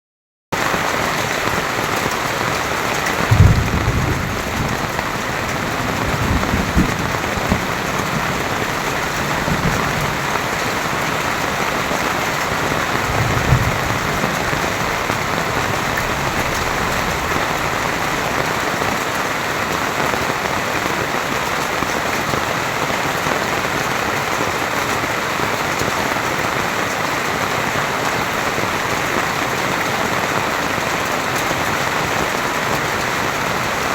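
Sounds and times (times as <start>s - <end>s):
heavy rain pouring: 0.6s - 33.9s
low thumps: 3.3s - 10.3s.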